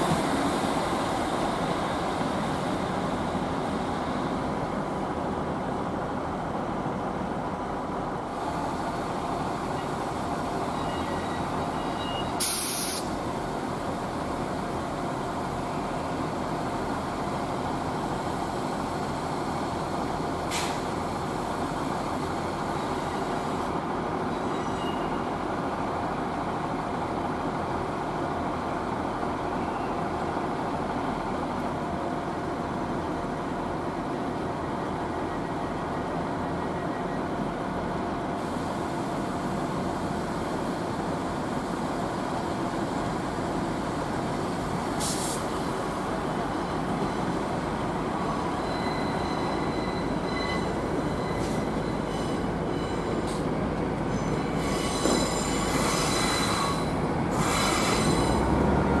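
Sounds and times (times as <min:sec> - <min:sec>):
train engine running: 0:00.0 - 0:59.0
air hiss: 0:12.4 - 0:13.2, 0:45.0 - 0:45.6.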